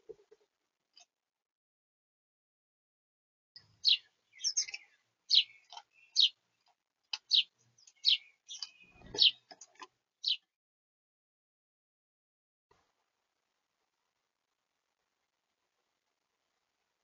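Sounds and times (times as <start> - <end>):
small birds chirping: 3.6 - 10.5.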